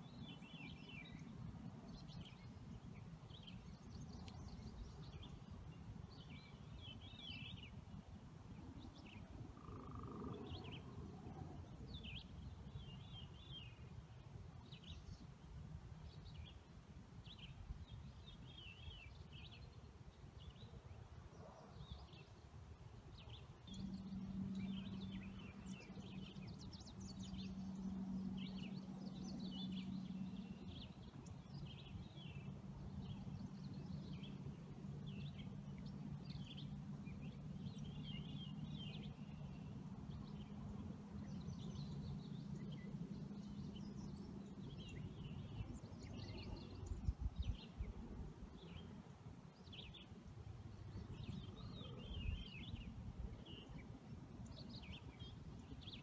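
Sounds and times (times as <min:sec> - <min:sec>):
birds chirping and twittering: 0:00.0 - 0:07.8, 0:08.7 - 0:13.9, 0:23.1 - 0:56.0
low steady hum: 0:00.0 - 0:56.0.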